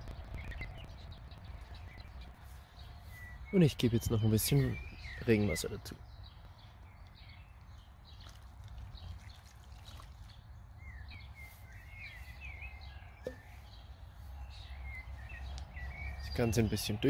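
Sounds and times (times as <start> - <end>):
steady low rumble: 0.0 - 3.6
birds chirping and twittering: 0.0 - 17.0.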